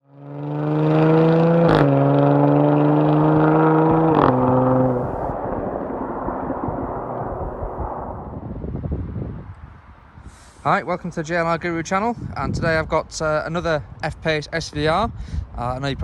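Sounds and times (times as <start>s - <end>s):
car engine accelerating hard: 0.0s - 8.2s
tyre and wind noise: 1.6s - 10.4s, 11.4s - 16.0s.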